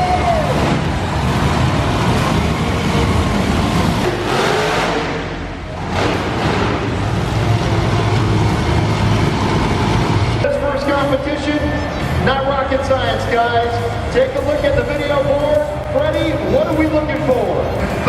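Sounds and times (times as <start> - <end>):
truck engines revving: 0.0 - 18.0.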